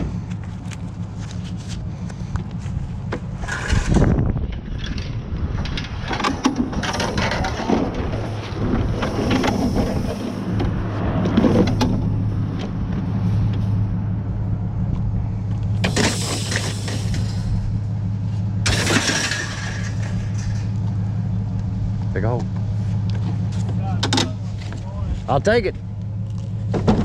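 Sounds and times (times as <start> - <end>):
low engine hum: 0.0 - 27.0
knocks and clatters: 2.4 - 13.7, 18.6 - 24.8, 26.3 - 27.0.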